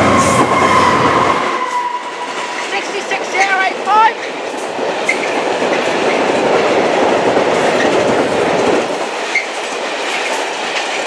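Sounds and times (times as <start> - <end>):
train wheels clattering on rails: 0.0 - 11.0.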